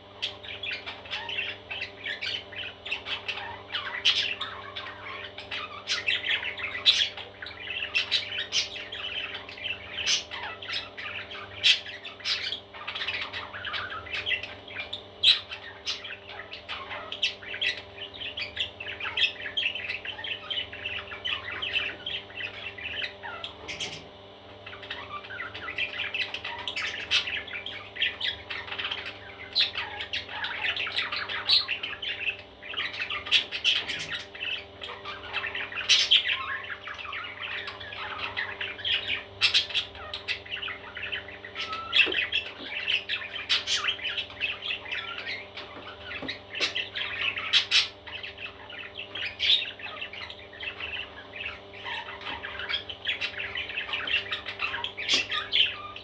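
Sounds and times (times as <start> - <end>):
baby parrots chirping and squawking: 0.0 - 56.0.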